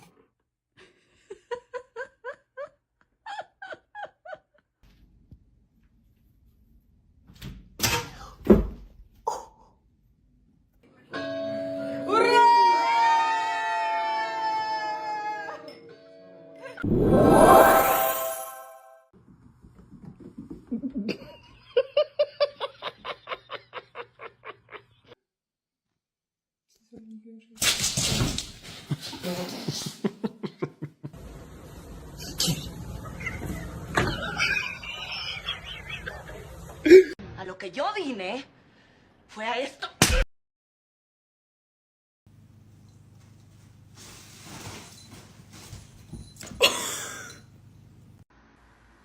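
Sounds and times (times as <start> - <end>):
person laughing: 34.2 - 37.2.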